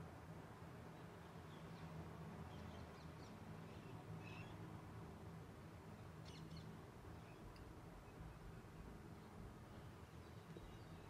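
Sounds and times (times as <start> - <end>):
small birds chirping: 5.9 - 11.0.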